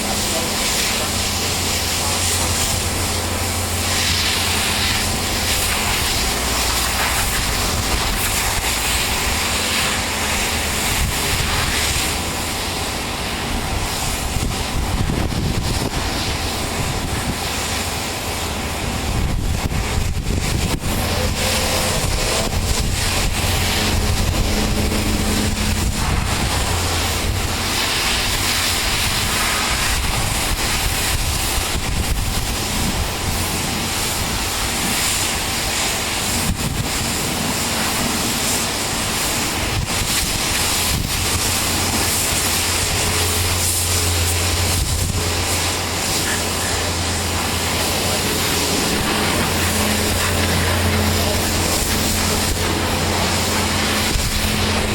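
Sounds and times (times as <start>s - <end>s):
pressure washer motor drone: 0.0s - 54.9s
water jet hissing: 0.0s - 54.9s.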